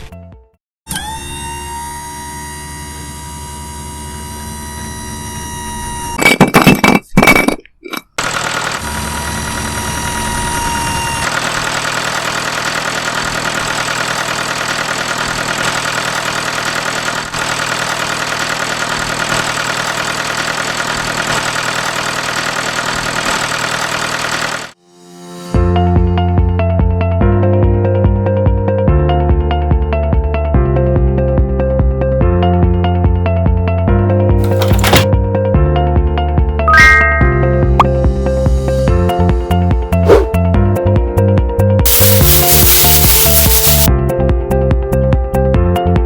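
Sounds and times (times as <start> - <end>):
small motor whining: 0.9 - 6.1.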